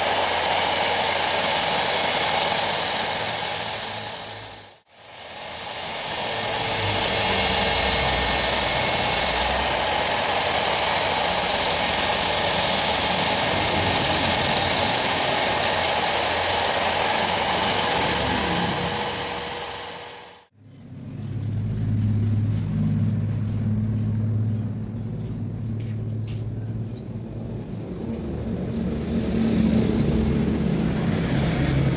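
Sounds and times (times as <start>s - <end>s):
motor-driven machine running: 0.0s - 20.5s.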